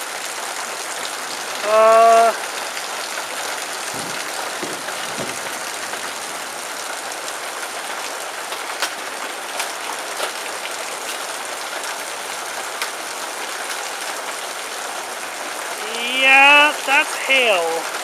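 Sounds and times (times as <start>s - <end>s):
heavy rain on metal roof: 0.0s - 18.0s
hailstones cracking on roof: 3.6s - 14.4s.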